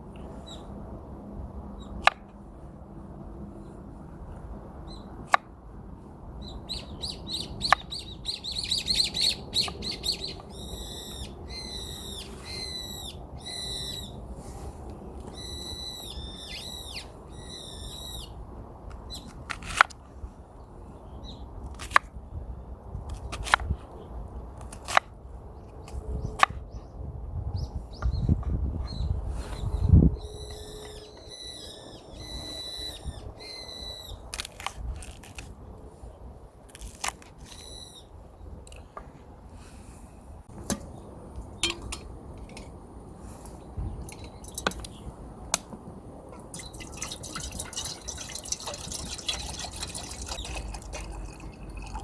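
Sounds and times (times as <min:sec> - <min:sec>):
small birds trilling and chirping: 0:06.4 - 0:14.2, 0:46.6 - 0:50.8.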